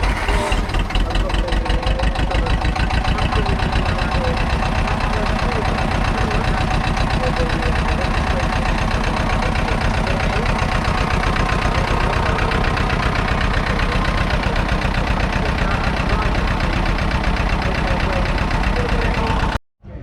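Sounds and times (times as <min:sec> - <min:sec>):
diesel tractor engine idling: 0:00.0 - 0:20.0.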